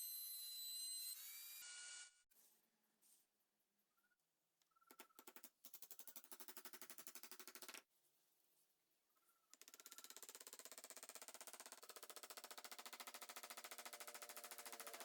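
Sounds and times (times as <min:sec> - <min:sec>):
power tool knocking rapidly: 0:10.2 - 0:15.0.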